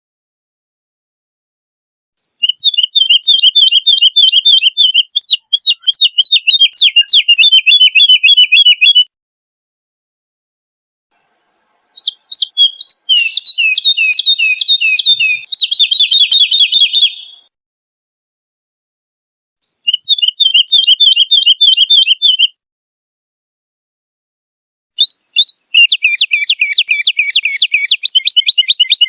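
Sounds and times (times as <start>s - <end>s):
woodlark singing: 2.2s - 9.1s, 11.1s - 17.5s, 19.6s - 22.6s, 25.0s - 29.0s.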